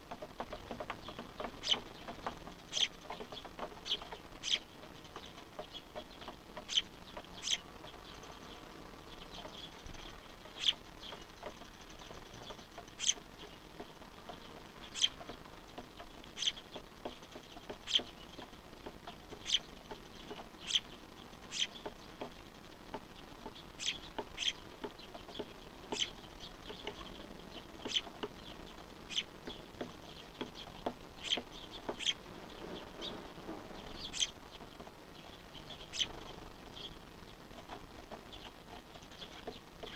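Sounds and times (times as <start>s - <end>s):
fledgling bird begging calls: 0.6s - 2.0s, 2.7s - 4.7s, 5.7s - 7.8s, 10.4s - 11.5s, 12.4s - 13.6s, 14.8s - 15.3s, 16.0s - 16.8s, 19.0s - 19.7s, 20.3s - 21.9s, 23.6s - 24.7s, 25.4s - 32.3s, 33.9s - 34.4s.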